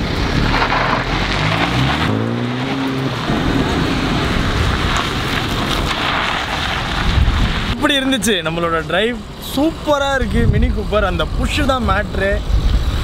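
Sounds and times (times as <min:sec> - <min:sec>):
car engine accelerating: 0:00.0 - 0:07.1
tyre and wind noise: 0:00.0 - 0:13.0.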